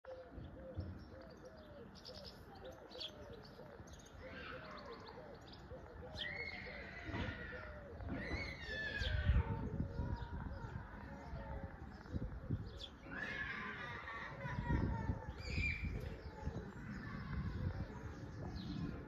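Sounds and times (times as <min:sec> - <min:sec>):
birds chirping high: 0:00.0 - 0:19.0
long falling bird calls: 0:00.1 - 0:19.0.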